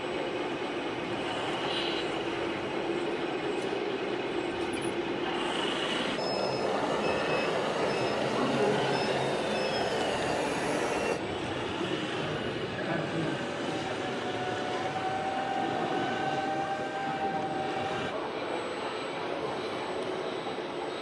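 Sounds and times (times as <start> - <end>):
faint high squeal: 6.2 - 11.2.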